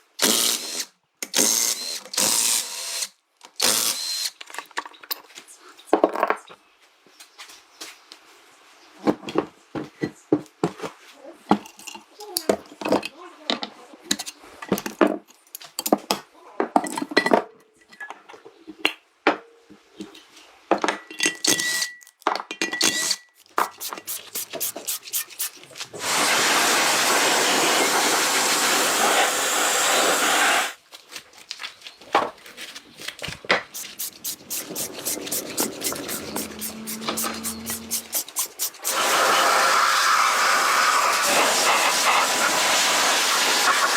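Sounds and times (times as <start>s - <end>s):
steady hiss: 23.5s - 30.8s, 33.7s - 43.9s.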